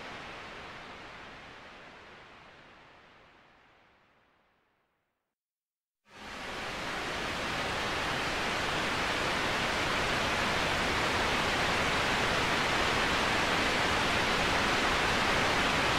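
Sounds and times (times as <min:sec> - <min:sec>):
waterfall rushing: 0:06.2 - 0:15.9.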